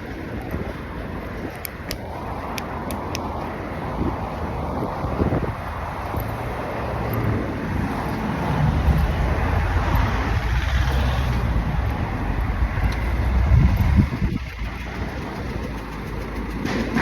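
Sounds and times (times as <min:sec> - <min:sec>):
cars driving past: 0:00.0 - 0:17.0.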